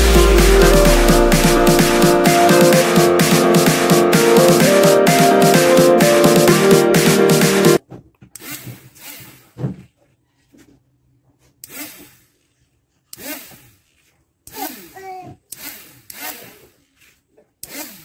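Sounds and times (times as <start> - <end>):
hand scraping workpiece: 11.4 - 18.0.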